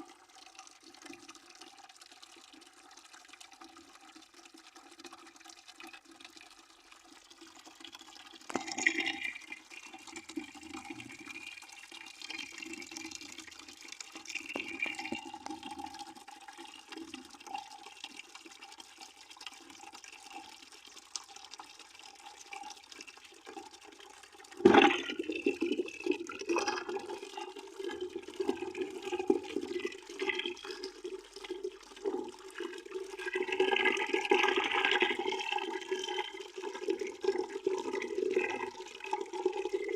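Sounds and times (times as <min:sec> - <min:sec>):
water splashing into plastic bucket: 0:24.5 - 0:39.9.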